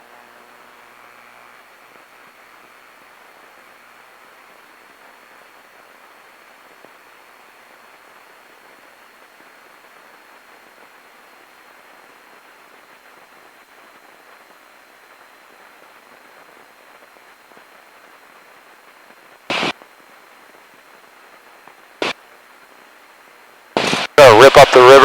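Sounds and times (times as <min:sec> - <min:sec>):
aircraft cabin hiss: 0:19.5 - 0:19.7, 0:23.8 - 0:25.0
sharp intercom click: 0:23.8 - 0:25.0.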